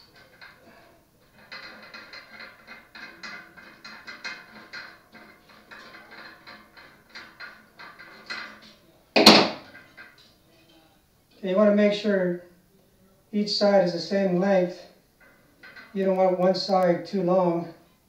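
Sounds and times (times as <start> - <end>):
small metal clicks and scrapes: 0.0 - 9.0, 9.6 - 11.4, 15.2 - 16.2
loud sharp metal clatter: 0.0 - 10.3.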